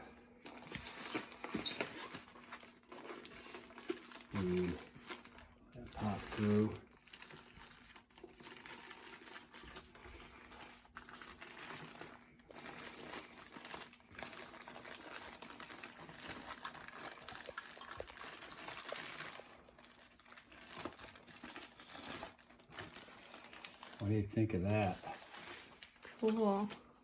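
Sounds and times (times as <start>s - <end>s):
plastic packaging crinkling: 0.3s - 26.9s.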